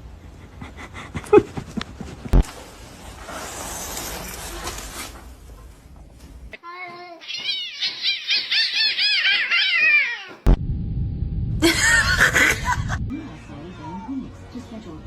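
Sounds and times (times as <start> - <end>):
cat meowing: 7.2 - 10.5
steady noise: 10.5 - 13.3
low rumble: 10.5 - 13.7.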